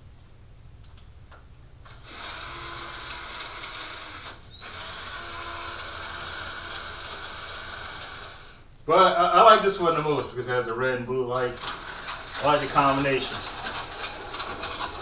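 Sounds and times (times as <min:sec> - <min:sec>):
low steady hum: 0:00.0 - 0:15.0
electric motor whine: 0:01.9 - 0:08.7, 0:11.3 - 0:15.0.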